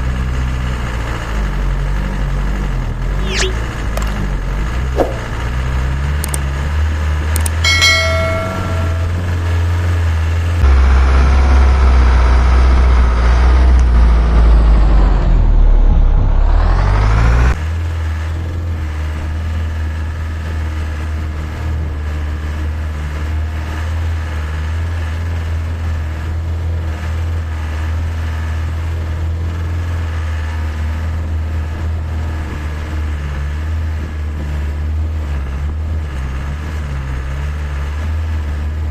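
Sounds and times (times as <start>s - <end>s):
diesel truck engine rumbling: 0.0s - 38.9s
brief pitched tone: 3.2s - 3.8s, 7.6s - 9.5s.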